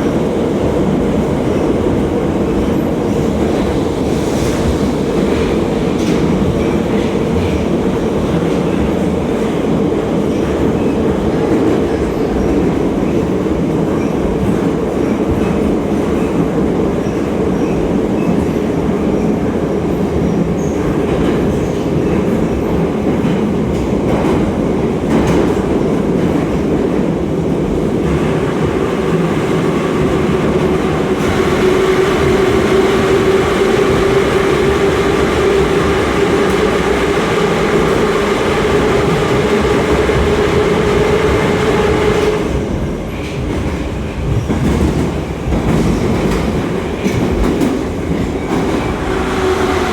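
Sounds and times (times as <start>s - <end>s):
subway wheels rumbling on rail: 0.0s - 49.9s.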